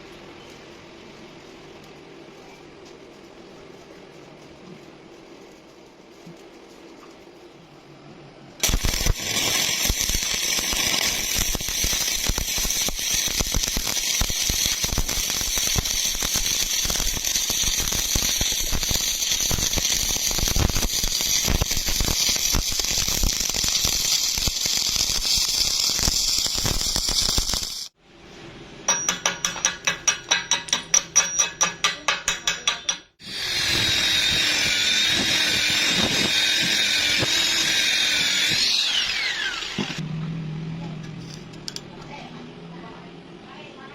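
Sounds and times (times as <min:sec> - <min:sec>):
welding arc crackling and hissing: 0:08.6 - 0:28.0, 0:31.8 - 0:40.0
power tool whining: 0:33.2 - 0:40.0.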